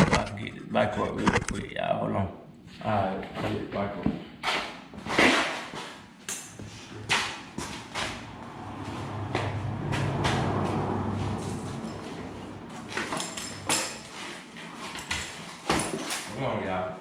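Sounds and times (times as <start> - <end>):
knocks and clanks: 7.1 - 16.3
metallic ring: 11.4 - 14.3.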